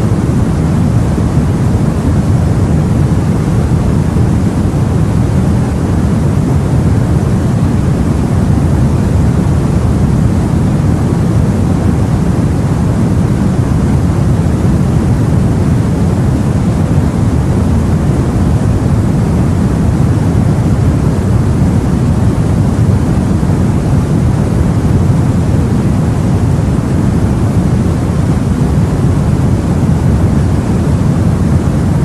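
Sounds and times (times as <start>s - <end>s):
deep rumbling sea: 0.0s - 32.0s.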